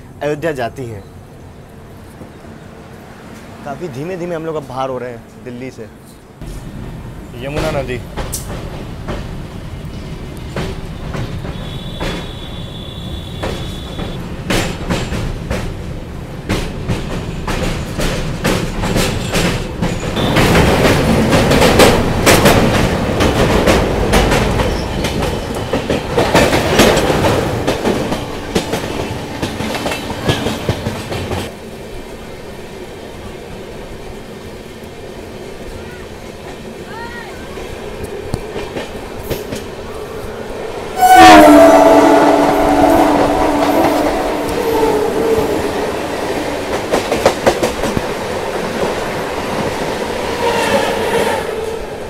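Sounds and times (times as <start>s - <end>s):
passing goods train rush: 0.0s - 52.0s
train wheels clicking over rail joints: 7.4s - 12.5s, 13.3s - 31.5s, 45.3s - 50.8s.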